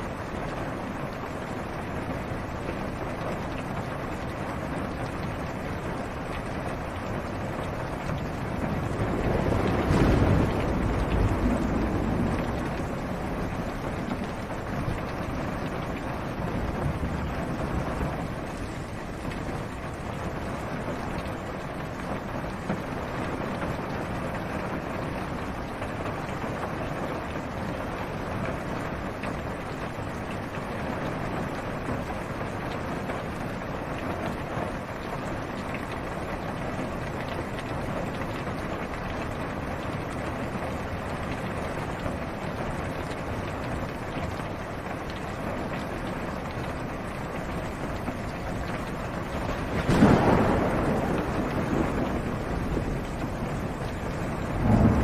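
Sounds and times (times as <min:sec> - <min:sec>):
rain on a car roof: 0:00.0 - 0:55.0
thunder clap: 0:08.6 - 0:15.1, 0:49.3 - 0:55.0.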